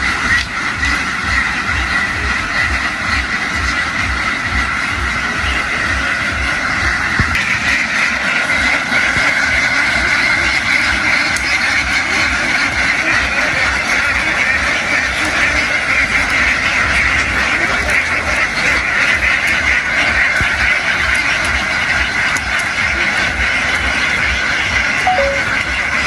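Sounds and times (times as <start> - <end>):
flock of ducks quacking: 0.0 - 26.0.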